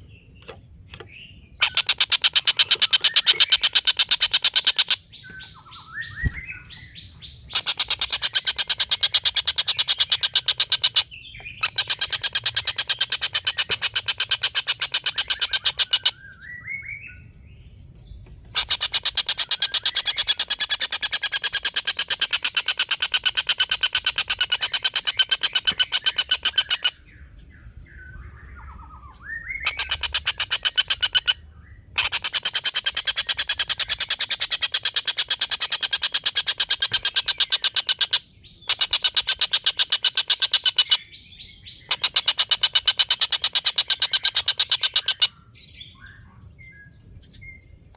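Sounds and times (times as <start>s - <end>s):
kingfisher cackling calls: 1.6s - 5.0s, 7.4s - 11.0s.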